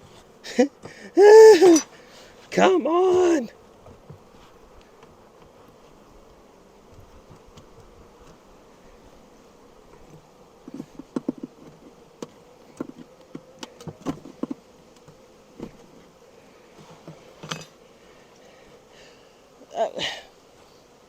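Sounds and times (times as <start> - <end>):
honeybees buzzing: 0.0 - 21.0
wooden hive frames clicking: 10.0 - 16.1.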